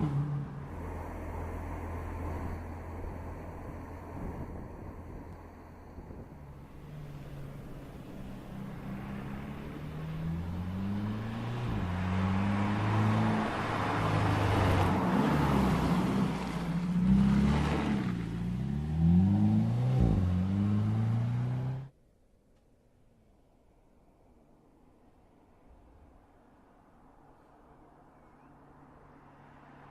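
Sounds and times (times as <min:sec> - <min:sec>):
car engine accelerating: 0:00.0 - 0:21.9.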